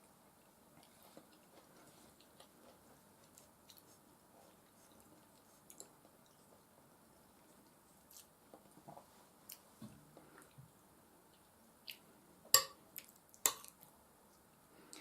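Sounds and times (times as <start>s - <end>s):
chewing with wet mouth clicks: 0.3s - 6.7s, 11.3s - 12.1s, 13.0s - 13.9s.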